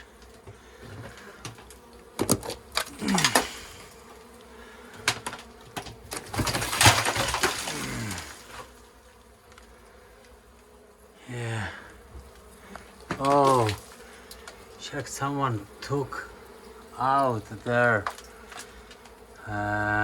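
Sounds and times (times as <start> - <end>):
honeybees buzzing: 0.0 - 20.0
scraping crackling noise: 12.3 - 15.1.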